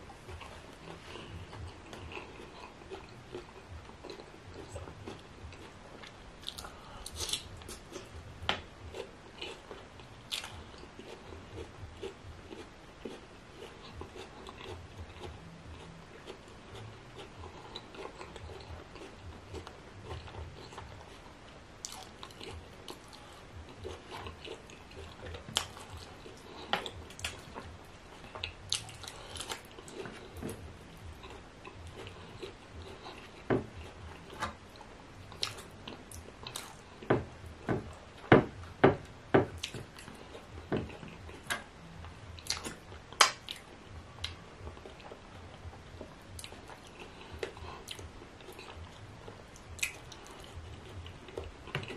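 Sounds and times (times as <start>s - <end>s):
person chewing wet mouth sounds: 0.2s - 38.0s, 39.6s - 51.9s
sharp mouth smacks and clicks: 42.4s - 44.4s.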